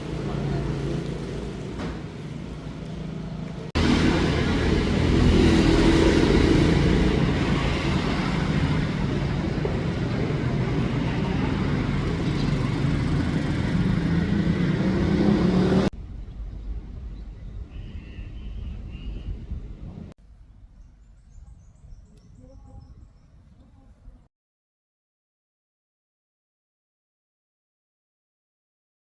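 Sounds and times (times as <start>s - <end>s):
vehicle engine and road rumble: 0.0s - 24.3s.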